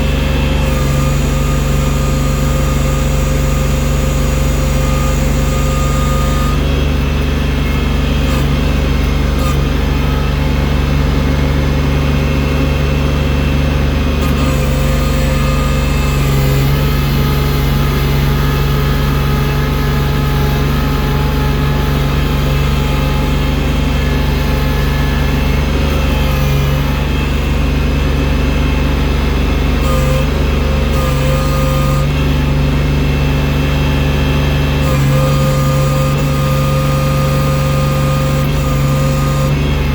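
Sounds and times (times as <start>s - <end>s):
snow clearing machine engine: 0.0s - 39.9s.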